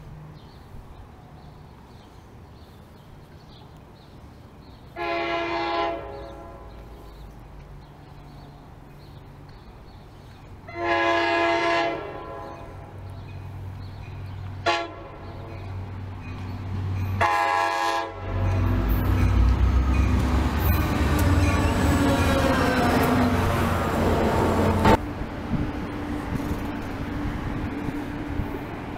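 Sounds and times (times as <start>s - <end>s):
rail noise: 0.0s - 28.9s
train passing with engine rumble: 0.0s - 28.9s
locomotive air horn blasts: 5.0s - 6.8s, 10.7s - 13.0s, 14.6s - 15.6s, 17.2s - 18.7s.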